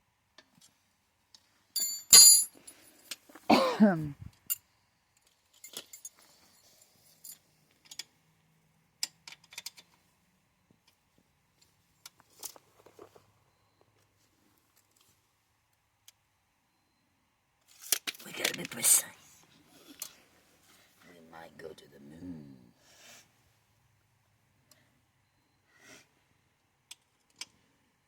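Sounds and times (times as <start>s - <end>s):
steel wrenches clanking: 1.8s - 2.6s.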